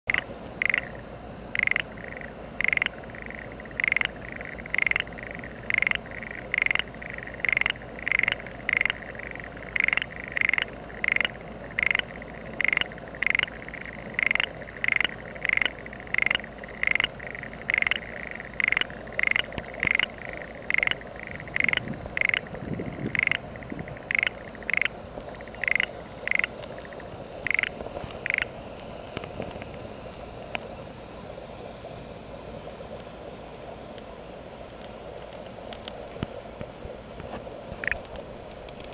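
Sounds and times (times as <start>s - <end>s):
frog croaking: 0.1s - 28.5s, 37.8s - 38.0s.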